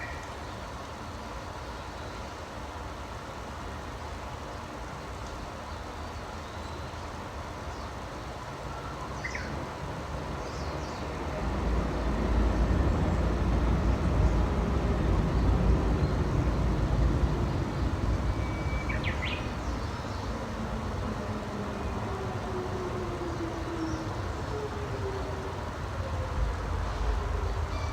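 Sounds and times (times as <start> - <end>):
passing vehicle rumble: 9.6 - 27.7.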